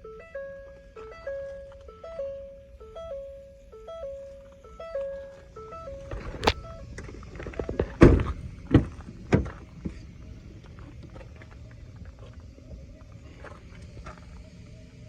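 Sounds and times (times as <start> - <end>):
steady low hum: 0.0 - 15.0
sharp knocks and clunks: 6.0 - 10.0.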